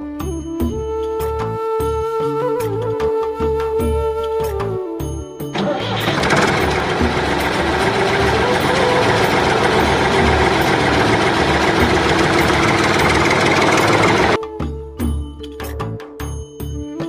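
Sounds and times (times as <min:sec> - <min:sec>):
harvester engine throbbing: 0:05.6 - 0:14.4.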